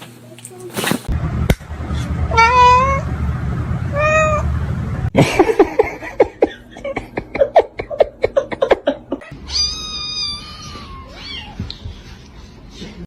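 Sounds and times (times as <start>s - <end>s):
cat meowing: 9.2s - 11.6s
cat yowling: 9.2s - 11.6s.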